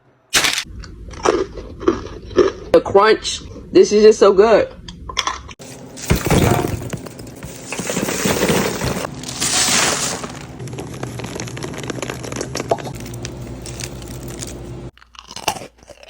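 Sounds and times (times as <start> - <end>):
freeze-dried candy crackling: 9.1 - 16.0
steady low hum: 10.4 - 14.9.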